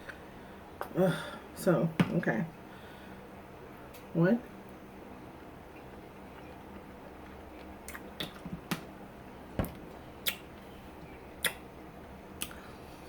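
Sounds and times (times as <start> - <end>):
wet chewing mouth sounds: 5.8 - 8.7.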